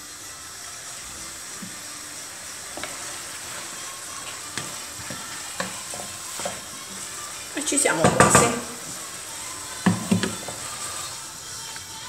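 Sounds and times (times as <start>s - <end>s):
food sizzling in a frying pan: 0.0s - 12.0s
wooden spoon knocking on pan: 4.5s - 6.8s, 7.7s - 9.0s, 9.8s - 10.7s.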